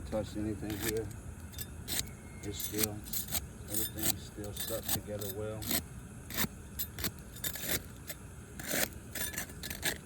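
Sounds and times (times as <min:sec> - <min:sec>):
tool scraping roof shingle: 0:02.6 - 0:10.0.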